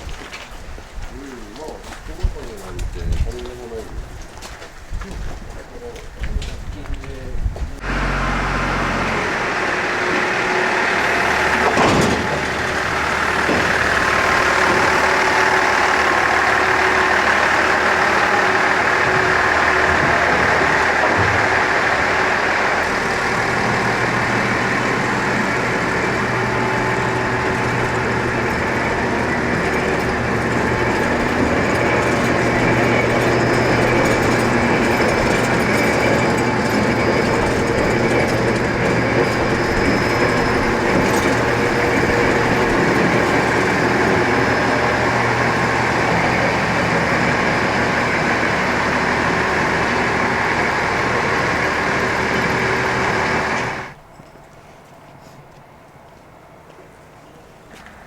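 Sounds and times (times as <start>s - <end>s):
diesel railcar engine hum: 0.0s - 58.0s
train rail noise: 0.0s - 58.0s.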